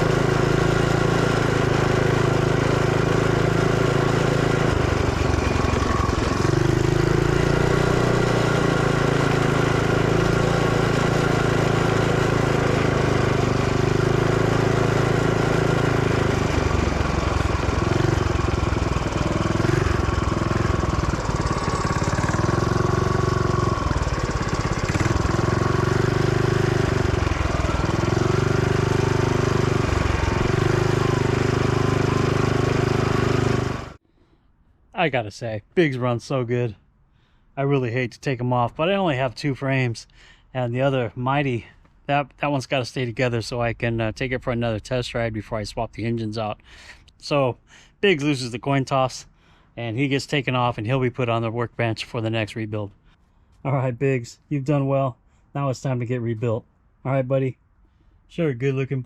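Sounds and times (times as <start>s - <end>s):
small engine revving: 0.0s - 34.0s.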